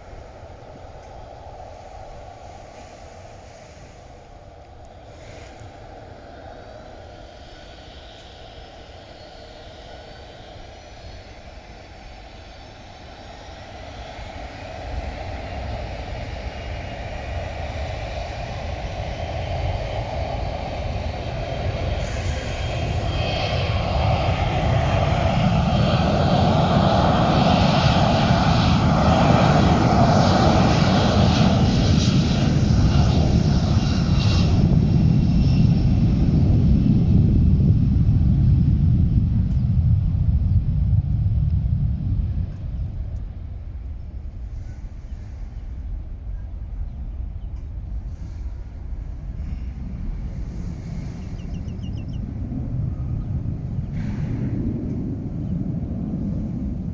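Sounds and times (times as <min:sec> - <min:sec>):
jet airliner engines: 0:00.0 - 0:56.9.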